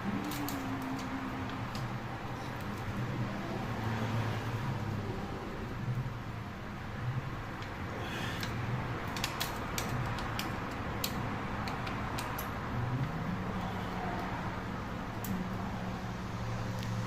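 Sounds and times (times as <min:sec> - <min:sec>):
scooter engine humming: 0:00.0 - 0:03.9
sharp clicks and rattles: 0:08.4 - 0:13.1.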